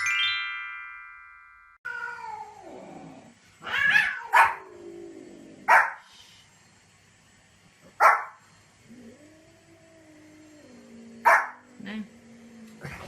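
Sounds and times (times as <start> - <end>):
descending chime: 0.0 - 1.8.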